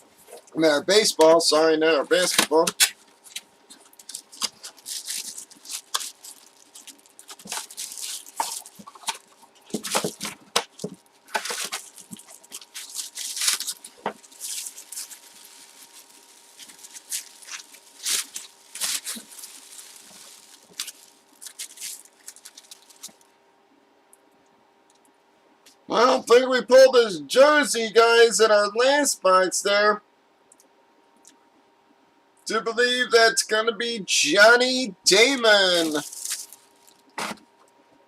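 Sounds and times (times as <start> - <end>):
packaging rustling and crinkling: 2.1 - 23.3, 35.3 - 37.6.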